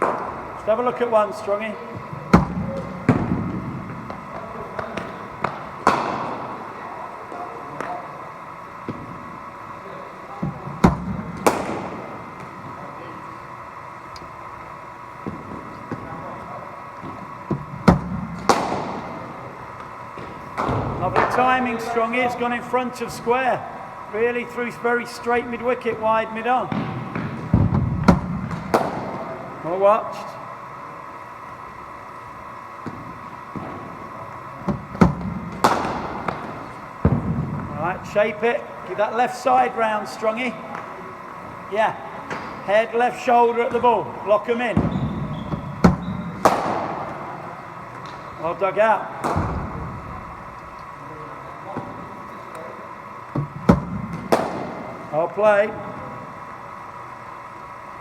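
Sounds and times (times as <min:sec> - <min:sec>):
bat striking ball: 0:00.0 - 0:00.5, 0:02.2 - 0:06.7, 0:10.4 - 0:12.8, 0:17.0 - 0:21.9, 0:26.6 - 0:29.5, 0:32.8 - 0:37.7, 0:44.7 - 0:48.3, 0:49.2 - 0:51.0, 0:53.3 - 0:55.1
steady hum: 0:00.0 - 0:58.0
ball knocks against bat: 0:45.8 - 0:47.2, 0:49.2 - 0:49.8, 0:53.3 - 0:54.9.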